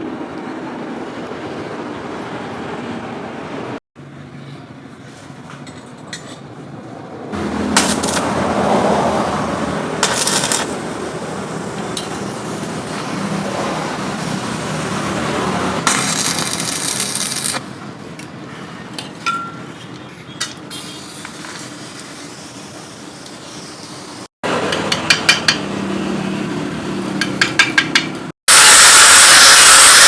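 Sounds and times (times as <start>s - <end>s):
hammer tapping on metal: 24.7s - 25.7s, 27.2s - 28.3s.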